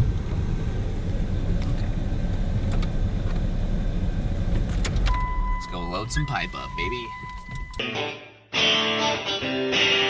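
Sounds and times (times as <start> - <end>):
truck engine rumble from inside cab: 0.0 - 7.8.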